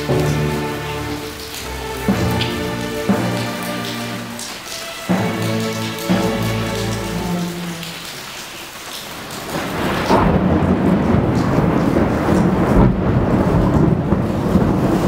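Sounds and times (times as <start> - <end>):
rain falling: 0.0 - 15.0
thunder rumbling: 9.5 - 15.0.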